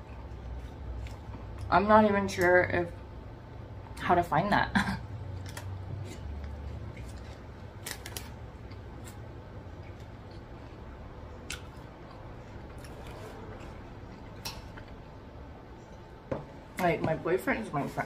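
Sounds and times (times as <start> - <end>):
chewing crunchy fries: 0.0 - 1.7, 5.2 - 15.1.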